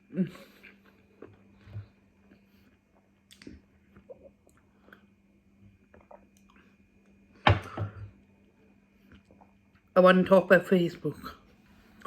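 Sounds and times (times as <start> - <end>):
faint chewing: 0.4 - 7.2
mouth clicks and smacks: 3.2 - 4.6.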